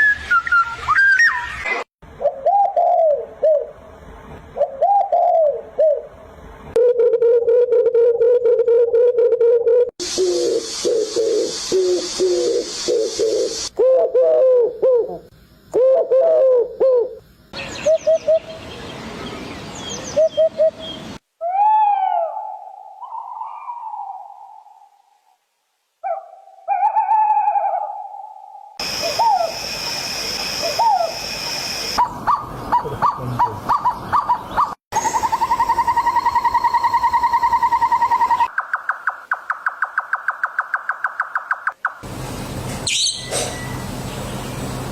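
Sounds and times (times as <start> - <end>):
dove cooing: 2.2 - 3.8, 4.6 - 6.1, 6.8 - 17.2
steady hiss: 10.0 - 13.7, 28.8 - 32.0.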